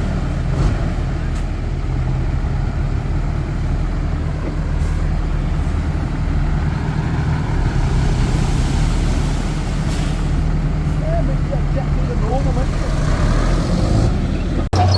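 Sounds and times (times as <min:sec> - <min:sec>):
diesel machinery engine drone: 0:00.0 - 0:14.9.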